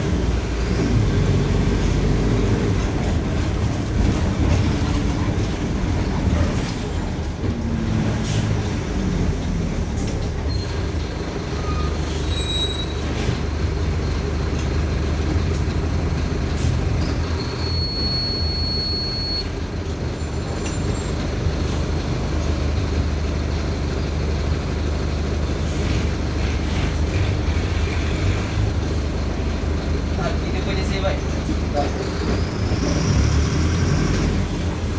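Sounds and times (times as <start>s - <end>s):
bus body rattles: 0.0s - 18.3s, 19.4s - 33.2s
bus diesel engine running: 0.0s - 34.9s
brief high squeal: 11.6s - 13.2s, 17.4s - 19.5s.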